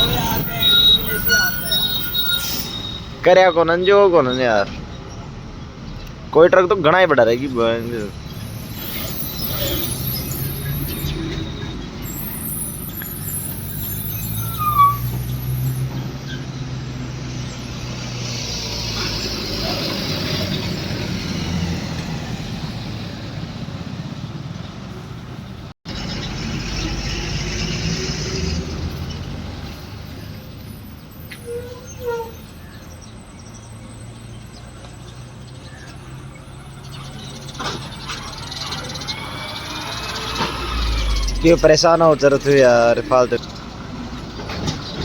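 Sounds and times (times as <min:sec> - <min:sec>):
truck diesel engine running: 0:00.0 - 0:03.3
brake squeal: 0:00.0 - 0:45.0
road noise: 0:00.0 - 0:45.0.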